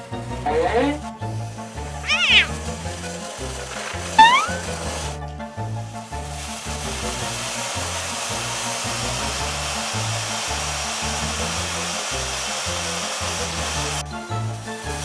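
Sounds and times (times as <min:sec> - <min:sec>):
vacuum cleaner running: 0:06.1 - 0:14.0.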